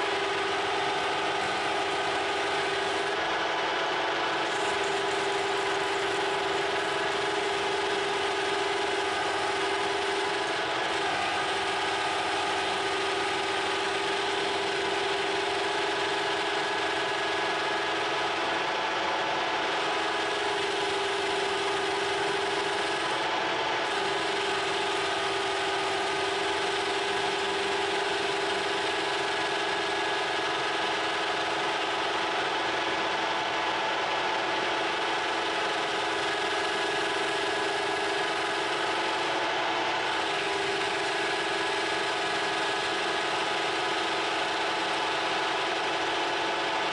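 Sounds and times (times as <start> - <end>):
lathe motor and gear whine: 0.0 - 46.9.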